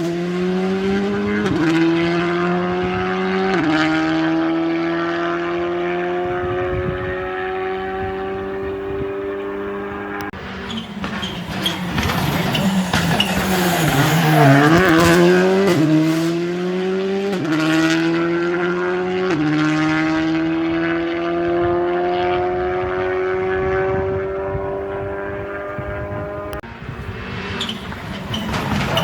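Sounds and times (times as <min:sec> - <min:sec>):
gear upshifts: 0:00.0 - 0:18.8
rally car engine accelerating: 0:00.0 - 0:29.0.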